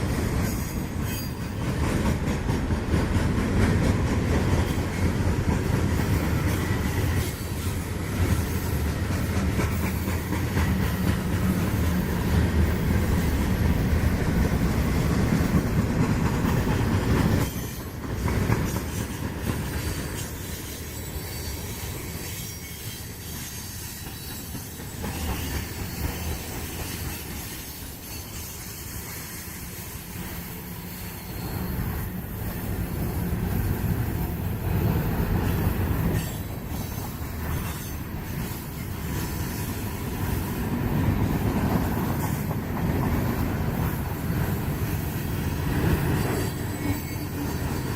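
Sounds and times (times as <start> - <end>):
freight train rolling past: 0.0 - 47.9
steel wheels on rail: 0.0 - 47.9
high wheel squeal: 0.4 - 1.6, 17.3 - 18.0, 18.7 - 34.3, 35.4 - 40.6, 43.8 - 47.9.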